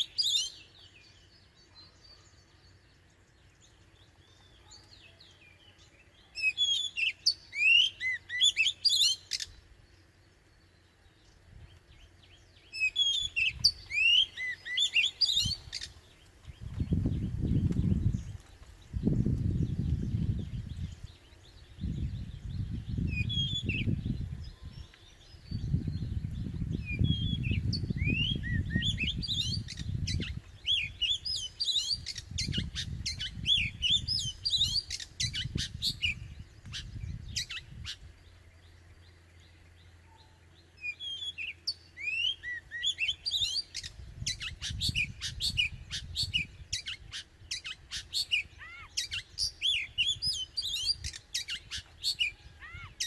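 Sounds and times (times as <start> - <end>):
bird singing: 0.0 - 53.0.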